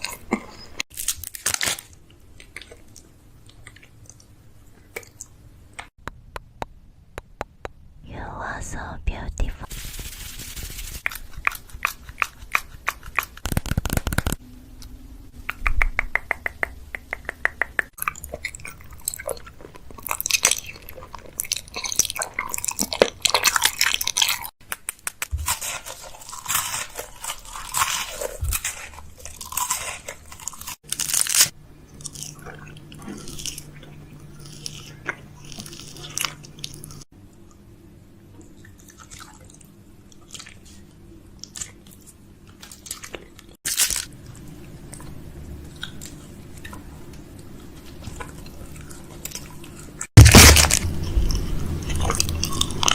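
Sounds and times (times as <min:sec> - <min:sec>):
crunchy chewing-like noises: 0:00.0 - 0:05.8, 0:11.0 - 0:14.4, 0:16.3 - 0:37.7, 0:38.3 - 0:52.9
asmr wet mouth clicks and smacks: 0:11.0 - 0:14.4, 0:15.4 - 0:18.8.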